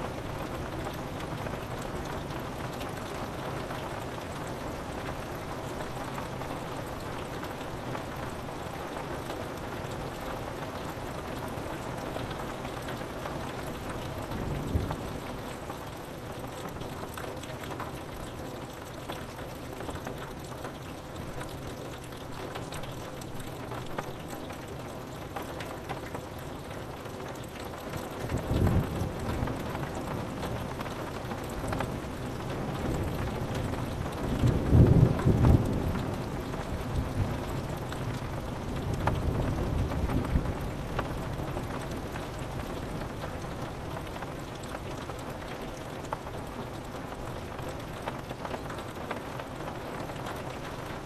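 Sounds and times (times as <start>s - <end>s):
rain on window glass: 0.0s - 51.0s
low thunder rumble: 33.0s - 41.3s.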